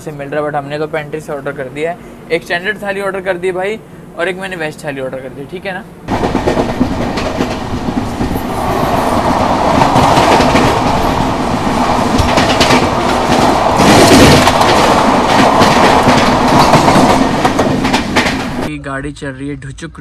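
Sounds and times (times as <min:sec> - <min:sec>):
train wheels clattering on rails: 0:06.1 - 0:18.7.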